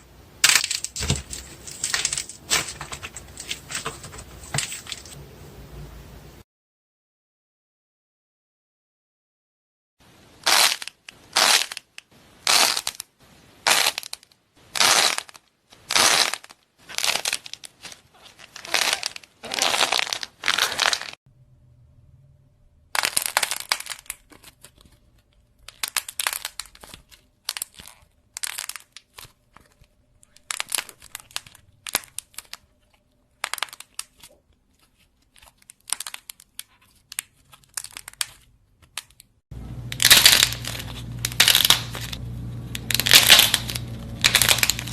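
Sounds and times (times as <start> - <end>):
faint hum: 0.0 - 6.4, 21.3 - 23.0, 39.5 - 44.9
slime crackling when squeezed: 14.8 - 21.2, 42.8 - 44.9.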